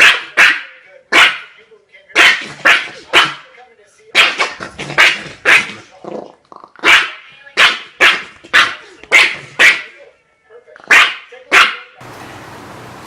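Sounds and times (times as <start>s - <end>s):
dog barking: 0.0s - 1.6s, 2.2s - 3.4s, 4.2s - 5.9s, 6.8s - 9.9s, 10.9s - 12.0s.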